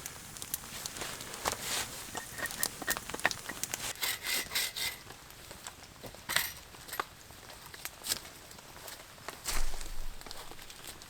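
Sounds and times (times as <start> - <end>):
wood crackling snaps: 0.0 - 3.9.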